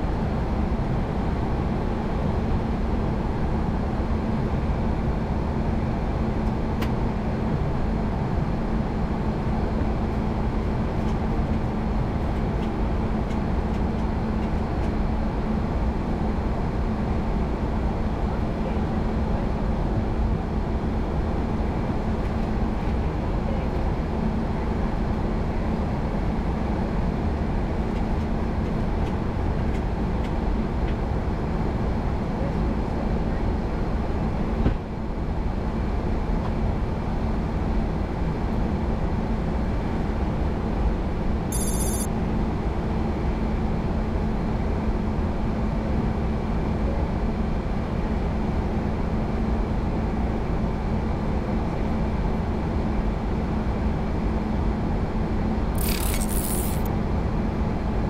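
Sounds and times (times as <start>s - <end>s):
high-pitched electronic tone: 41.5s - 42.1s.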